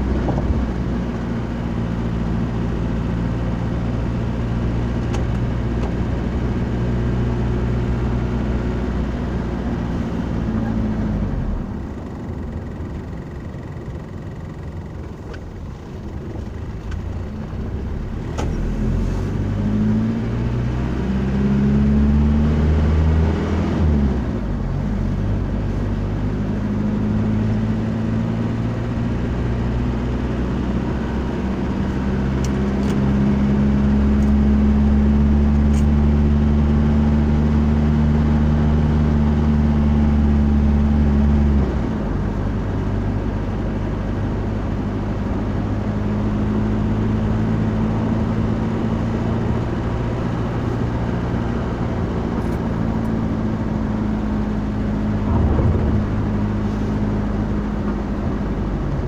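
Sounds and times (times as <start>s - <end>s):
car engine accelerating: 14.5s - 59.0s.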